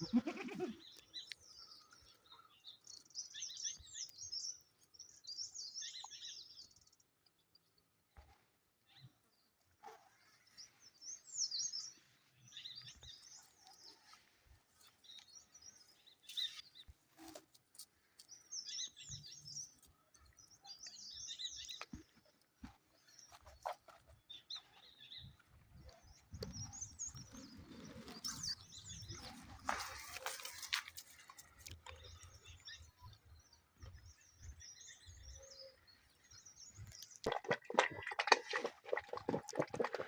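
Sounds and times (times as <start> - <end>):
birds chirping: 18.2 - 40.0.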